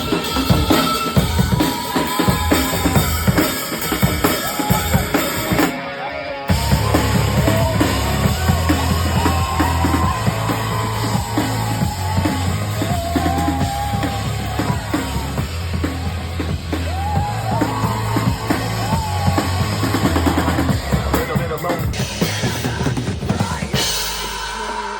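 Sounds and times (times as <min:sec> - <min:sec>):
music with bass and melody: 0:00.0 - 0:24.9
drum kit kick and snare: 0:06.5 - 0:24.9.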